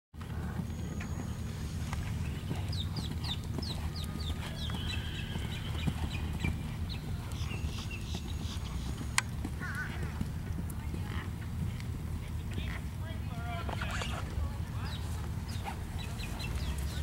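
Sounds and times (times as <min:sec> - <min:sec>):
bird chirping: 0:00.7 - 0:09.8, 0:14.8 - 0:17.0.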